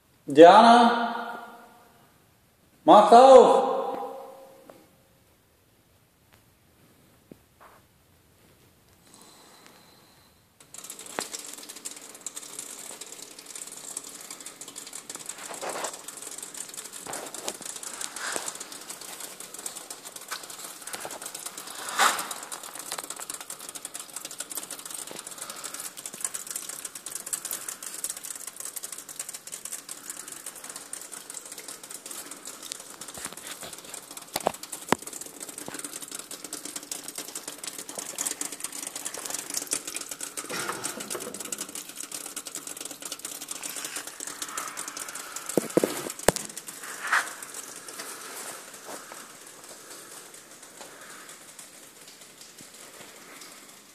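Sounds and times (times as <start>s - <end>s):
wood fire crackling: 6.1s - 53.9s
fire pops and snaps: 15.2s - 42.2s, 42.9s - 51.3s.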